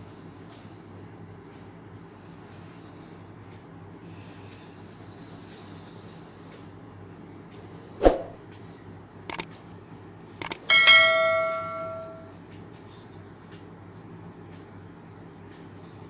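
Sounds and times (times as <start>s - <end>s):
quick double clicks: 10.4s - 10.7s
bell-like chime: 10.6s - 12.2s.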